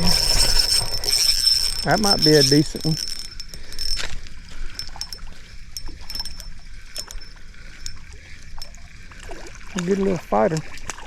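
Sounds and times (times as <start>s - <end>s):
fishing reel clicks: 0.0s - 8.0s
water splashing: 0.0s - 11.0s.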